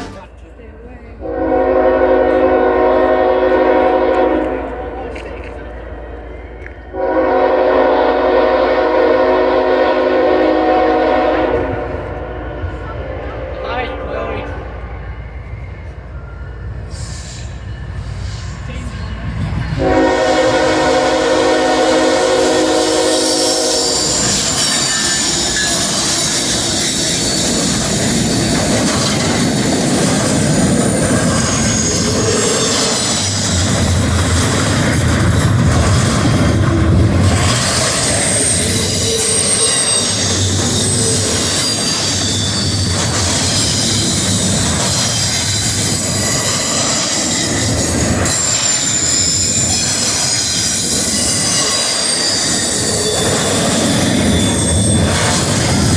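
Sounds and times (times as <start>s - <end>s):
locomotive air horn blast: 0.0s - 0.3s, 1.2s - 4.9s, 7.0s - 12.2s, 19.8s - 24.2s
deep drone: 0.0s - 0.4s
train wheels rumbling on rail: 0.0s - 55.9s
wheel squeal: 22.3s - 55.9s.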